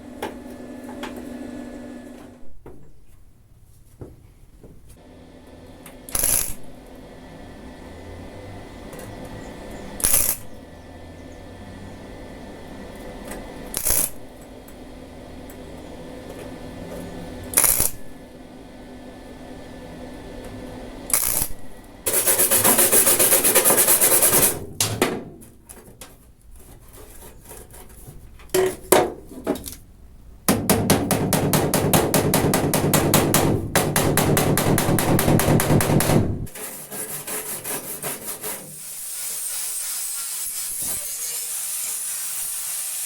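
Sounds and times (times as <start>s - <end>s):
electric welder crackling: 5.0s - 18.9s, 19.5s - 24.6s, 38.6s - 43.0s.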